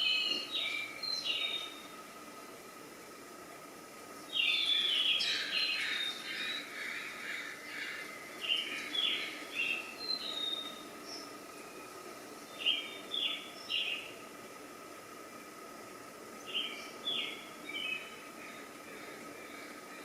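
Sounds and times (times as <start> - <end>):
birds chirping: 0.0 - 2.5, 3.9 - 20.0.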